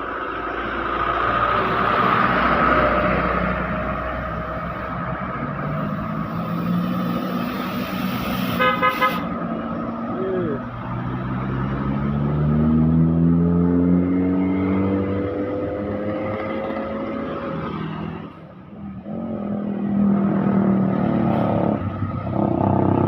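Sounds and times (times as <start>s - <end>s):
truck pulling away: 0.0s - 8.6s
truck engines running: 0.0s - 23.0s
truck horn toots: 8.3s - 9.4s.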